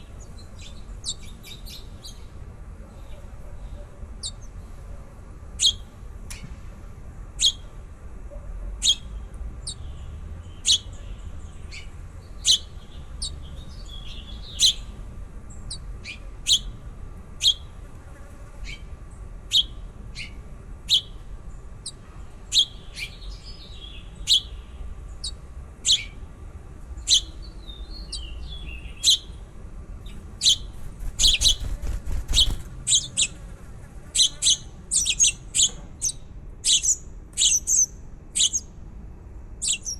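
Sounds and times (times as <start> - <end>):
baby birds chirping: 0.0 - 2.3, 3.0 - 4.6, 5.6 - 5.9, 7.4 - 7.7, 8.8 - 15.0, 15.6 - 16.8, 17.4 - 17.8, 19.5 - 21.2, 21.8 - 26.2, 27.0 - 33.5, 34.1 - 38.7, 39.6 - 39.9
soft bird twittering: 0.0 - 2.3, 5.6 - 6.5, 7.4 - 7.7, 8.8 - 16.8, 17.4 - 17.7, 19.5 - 21.2, 21.8 - 26.2, 27.0 - 33.4, 34.1 - 38.7, 39.6 - 39.9.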